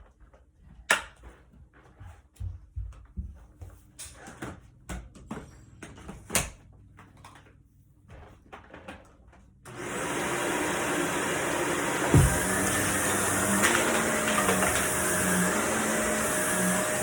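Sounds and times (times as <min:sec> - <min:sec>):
vacuum cleaner running: 0:09.7 - 0:17.0.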